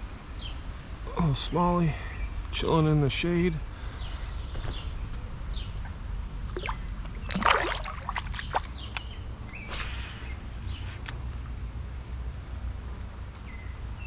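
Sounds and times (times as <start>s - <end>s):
steady low rumble: 0.0s - 14.0s
creek water splashing: 6.4s - 9.9s
short sharp splashes: 6.5s - 10.1s.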